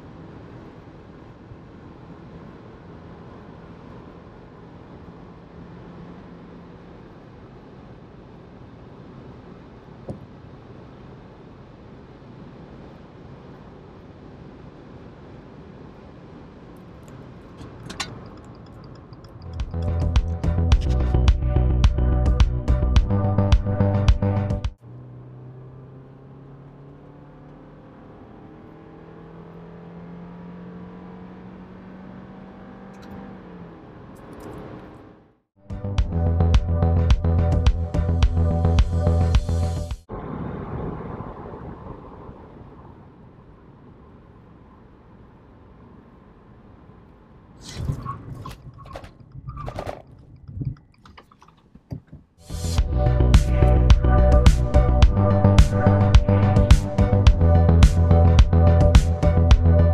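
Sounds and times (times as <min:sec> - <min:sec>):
road and wind noise: 0:00.0 - 0:59.9
car engine hum: 0:12.0 - 0:59.9.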